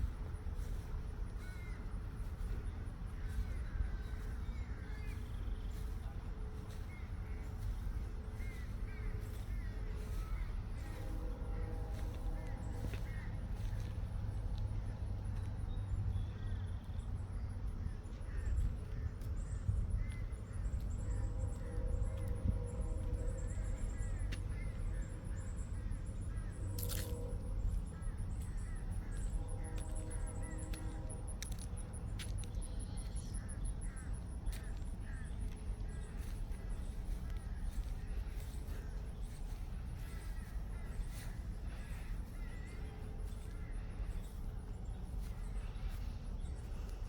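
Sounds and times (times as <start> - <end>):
crow-like caws: 1.3 - 2.4, 6.9 - 13.9, 17.8 - 19.2, 19.9 - 22.3, 27.9 - 30.6, 33.3 - 45.0.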